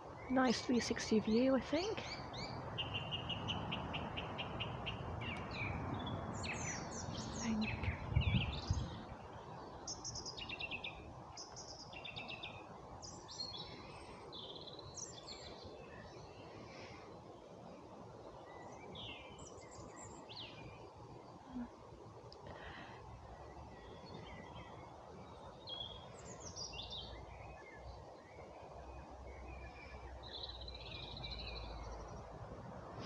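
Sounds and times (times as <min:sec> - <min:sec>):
birds singing and calling: 0:00.0 - 0:32.4
low rumble on microphone: 0:05.2 - 0:09.3.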